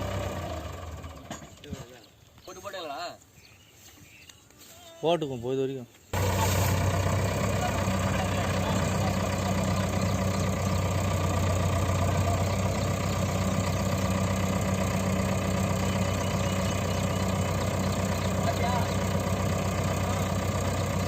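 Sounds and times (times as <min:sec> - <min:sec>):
diesel engine idling: 0:00.0 - 0:01.6, 0:06.2 - 0:21.0.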